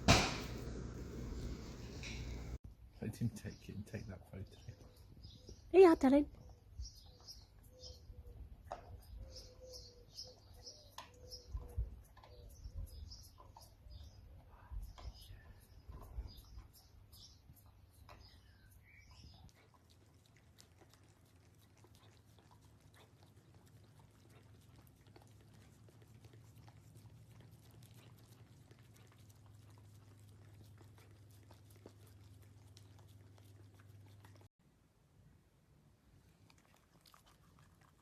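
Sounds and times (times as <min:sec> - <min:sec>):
faint low hum: 0:00.0 - 0:05.0
dog crunching food: 0:19.4 - 0:34.5, 0:36.3 - 0:38.0.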